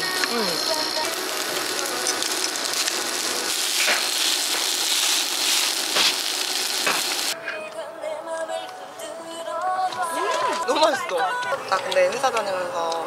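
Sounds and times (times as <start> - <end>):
fried rice sizzling: 0.0 - 7.4.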